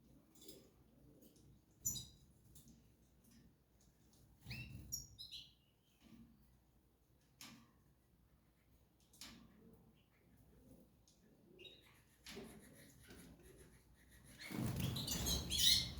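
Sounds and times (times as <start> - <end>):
small birds chirping: 1.8 - 2.2, 4.4 - 5.9, 14.2 - 15.9.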